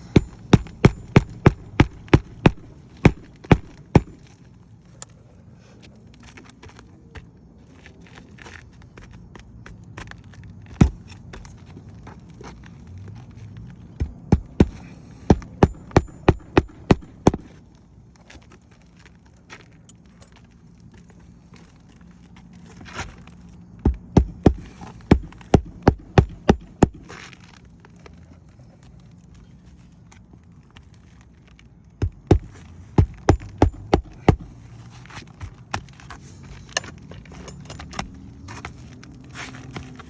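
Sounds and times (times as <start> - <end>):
hammer striking nails: 0.0 - 4.2, 14.0 - 17.5, 23.8 - 27.1, 32.0 - 34.5.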